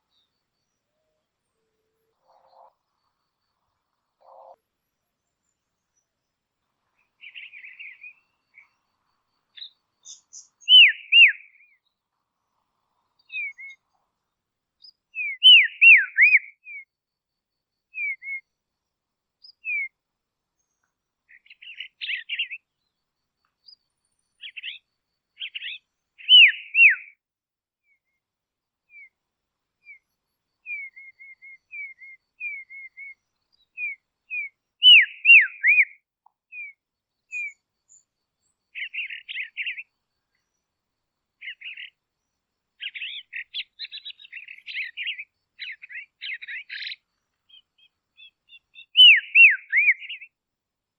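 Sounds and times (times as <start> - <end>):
robin whistled calls: 7.0 - 12.0, 13.2 - 13.8, 14.8 - 16.9, 17.9 - 18.6, 19.4 - 20.0, 20.6 - 23.0, 23.6 - 27.2, 28.9 - 29.2, 29.8 - 40.8, 41.4 - 50.4
short bird chirps: 7.0 - 12.0, 13.2 - 13.9, 20.6 - 23.0, 23.6 - 27.2, 29.8 - 40.7, 41.4 - 42.1, 42.8 - 50.3.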